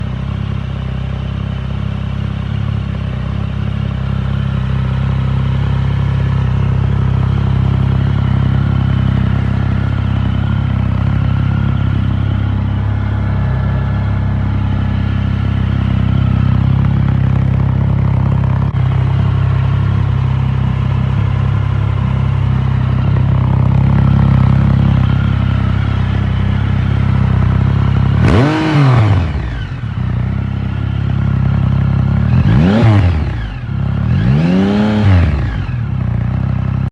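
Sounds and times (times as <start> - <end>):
motorcycle engine idling: 0.0 - 36.9.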